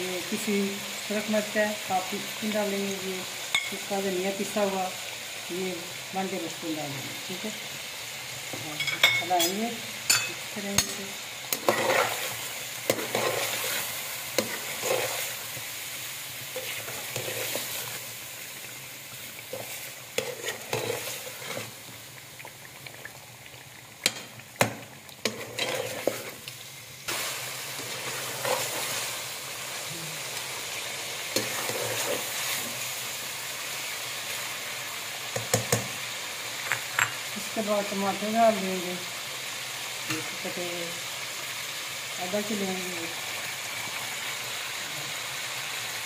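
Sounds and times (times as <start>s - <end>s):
chicken sizzling in oil: 0.0s - 46.0s
spatula scraping and knocking pot: 24.1s - 26.4s.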